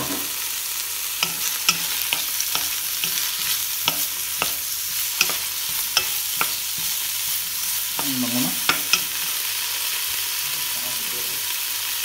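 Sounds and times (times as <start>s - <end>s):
vegetables sizzling in oil: 0.0s - 12.0s
spatula scraping a wok: 1.2s - 9.6s.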